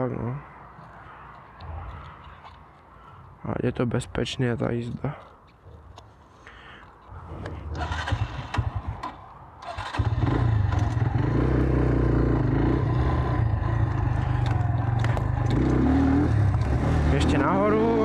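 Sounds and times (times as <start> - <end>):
motorcycle engine running: 9.8 - 18.0.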